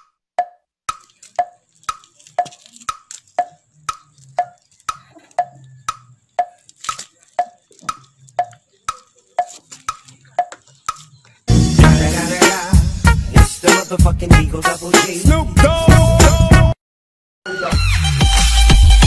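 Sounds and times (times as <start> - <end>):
wood-block tick with ringing: 0.0 - 6.7, 7.4 - 10.6.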